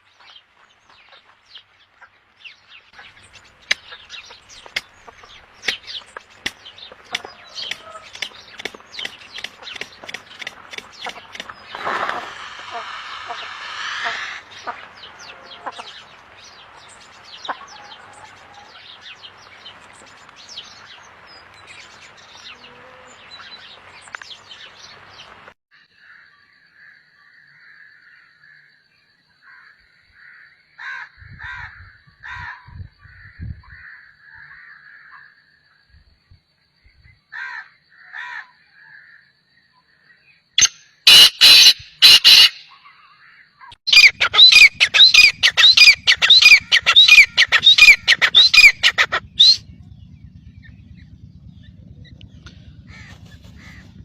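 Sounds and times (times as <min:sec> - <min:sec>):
birds chirping: 0:00.0 - 0:25.6, 0:39.9 - 0:54.0
hiss: 0:11.7 - 0:14.4.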